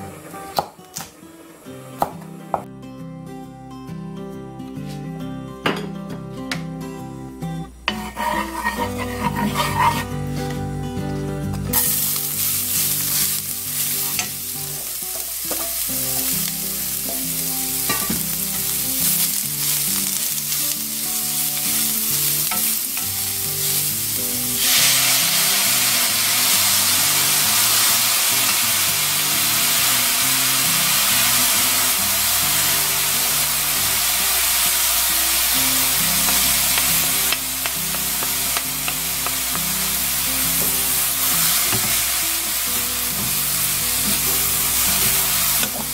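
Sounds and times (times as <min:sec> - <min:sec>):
vegetables sizzling in a hot pan: 0:07.8 - 0:10.1, 0:11.7 - 0:45.9
wooden spatula scraping and clattering: 0:07.9 - 0:10.1.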